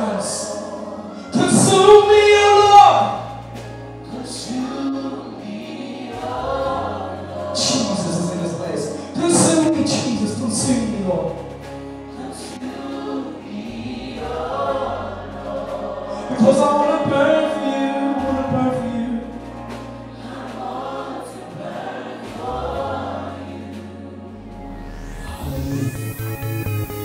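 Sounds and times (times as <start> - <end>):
choir singing gospel song: 0.0 - 27.0
steady bass line: 9.4 - 27.0.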